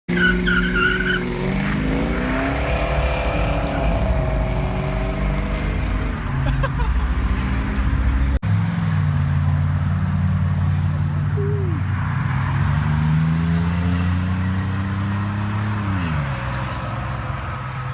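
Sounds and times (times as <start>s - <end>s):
car engine revving: 0.1s - 6.3s.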